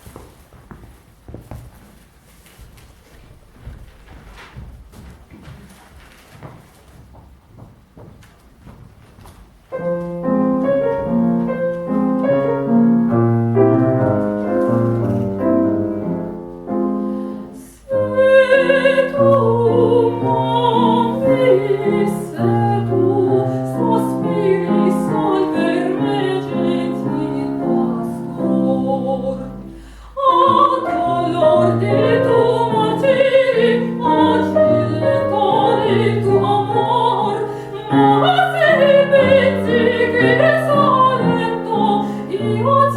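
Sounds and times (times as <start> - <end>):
grand piano: 0.0 - 42.9
operatic woman singing: 17.9 - 42.9.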